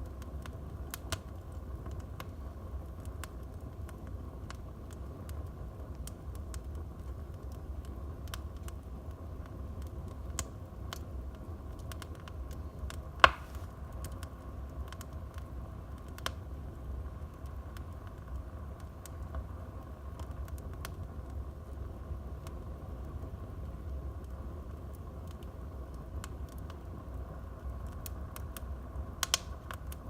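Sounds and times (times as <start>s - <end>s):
low fire rumble: 0.0s - 30.0s
wood fire crackling: 0.0s - 30.0s
loud sharp pop: 13.2s - 13.7s.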